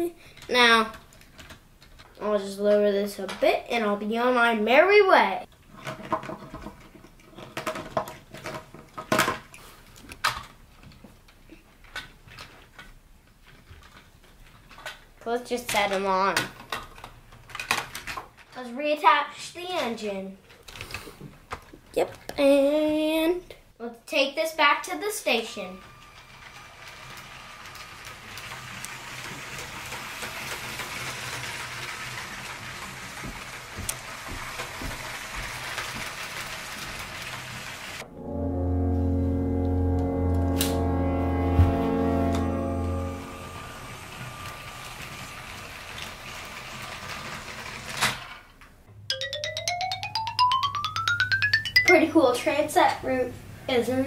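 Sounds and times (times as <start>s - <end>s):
plastic toy parts clicking: 15.7s - 18.4s
wheels clicking over track joints: 25.8s - 37.7s
toy train motor whirring: 25.8s - 38.0s, 43.9s - 48.5s.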